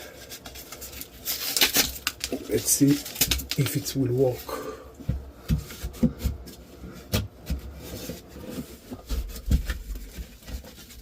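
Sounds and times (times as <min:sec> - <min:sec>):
drywall scraping and rubbing: 0:05.4 - 0:11.0
drywall knocks and thuds: 0:09.0 - 0:10.7.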